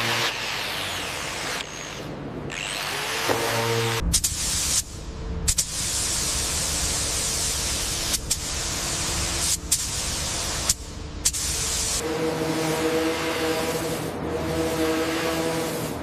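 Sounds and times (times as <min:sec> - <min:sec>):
pressurised spray hissing: 0:04.1 - 0:16.0.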